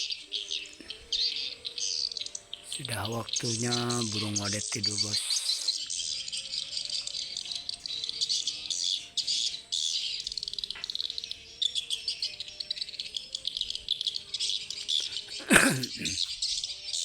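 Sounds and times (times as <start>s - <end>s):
swiftlets twittering: 2.7s - 5.8s.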